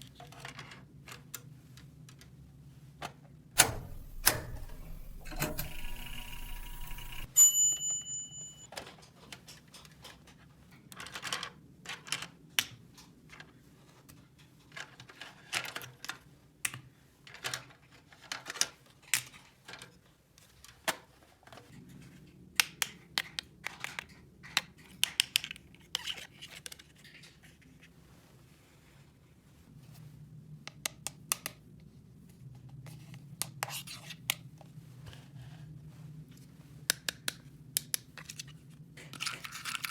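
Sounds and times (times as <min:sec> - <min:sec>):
high steady tone: 0:03.6 - 0:08.7
plastic toy pieces clicking: 0:39.2 - 0:39.9.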